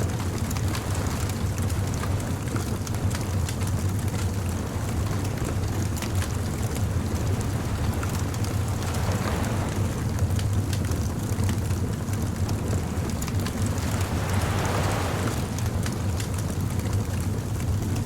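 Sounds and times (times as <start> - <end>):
low rumble of surf: 0.0 - 18.0
wood fire crackling and popping: 10.2 - 15.2.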